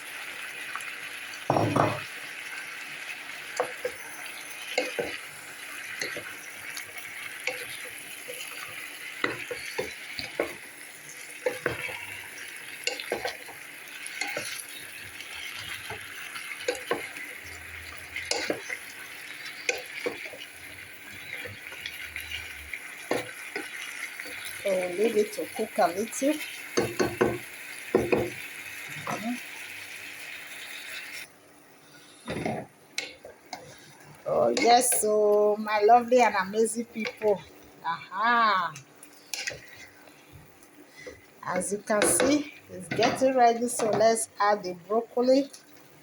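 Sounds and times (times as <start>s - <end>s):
chicken and carrots sizzling: 0.0s - 46.0s.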